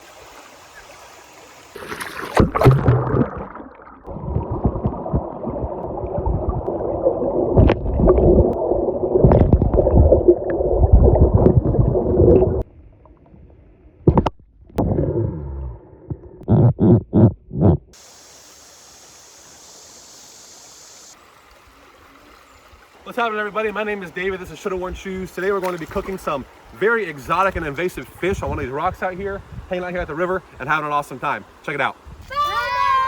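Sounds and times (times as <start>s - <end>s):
water sloshing and gurgling: 1.6s - 16.5s, 25.2s - 28.7s.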